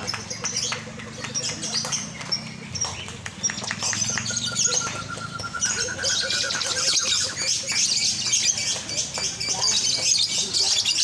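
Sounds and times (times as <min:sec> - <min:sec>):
lovebirds twittering: 0:00.0 - 0:11.0
pulsed lower bird call: 0:02.6 - 0:08.2.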